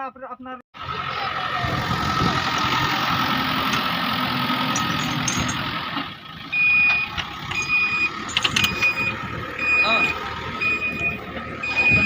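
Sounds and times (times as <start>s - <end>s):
heavy diesel engine running: 0.8s - 12.0s
reversing alarm beep: 6.5s - 12.0s.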